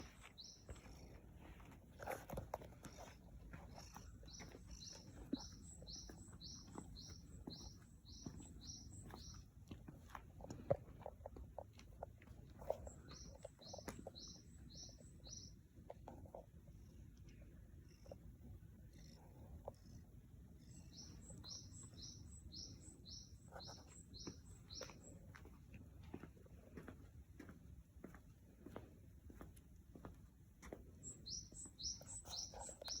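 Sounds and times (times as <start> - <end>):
faint clicks and rustles: 0.0 - 5.5
songbird chirping: 0.0 - 10.7, 12.5 - 16.4, 18.8 - 26.7, 30.7 - 33.0.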